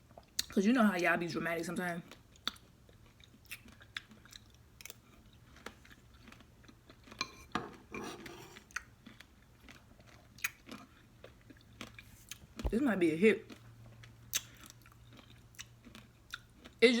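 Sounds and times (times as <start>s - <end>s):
person chewing wet crunches: 2.1s - 7.4s, 8.6s - 12.8s, 13.4s - 16.8s.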